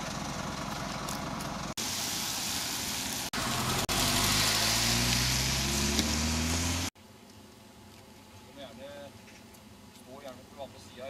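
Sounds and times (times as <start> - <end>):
steady hiss: 1.8 - 5.7
car engine pulling away: 3.3 - 7.0.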